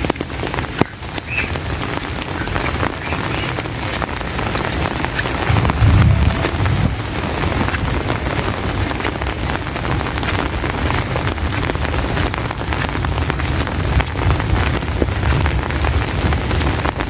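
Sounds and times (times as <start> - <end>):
heavy rain: 0.0 - 17.0
continuous low rumble: 4.6 - 9.3.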